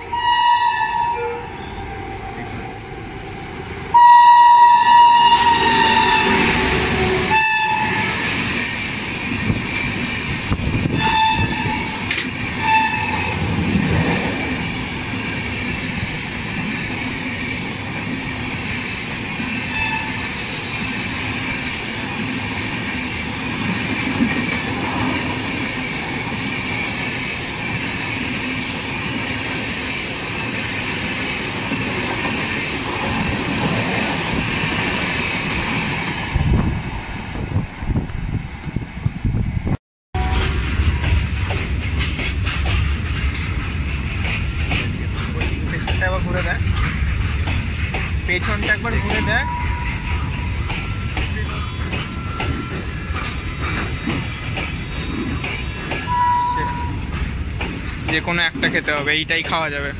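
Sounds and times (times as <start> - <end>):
locomotive horn: 0.0 - 1.8, 3.9 - 8.2, 11.0 - 12.0, 12.6 - 13.4, 48.9 - 50.0, 56.1 - 57.0
coaches rumbling and wheel clatter: 8.2 - 59.9.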